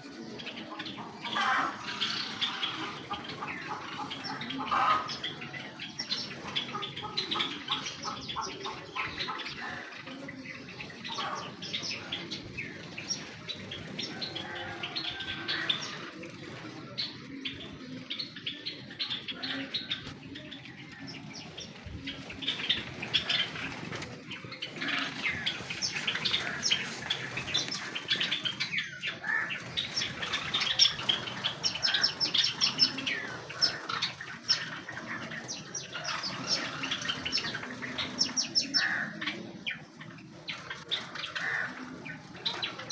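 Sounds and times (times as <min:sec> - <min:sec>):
sparrows chirping: 0:00.0 - 0:42.9
wings fluttering: 0:21.8 - 0:39.0.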